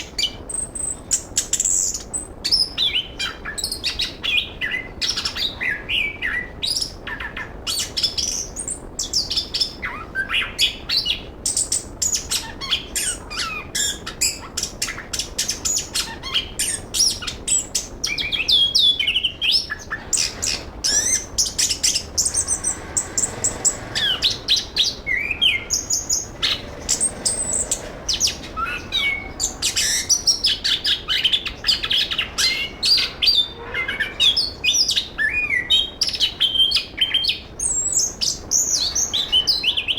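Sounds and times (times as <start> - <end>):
thrush singing: 16.5 - 35.9.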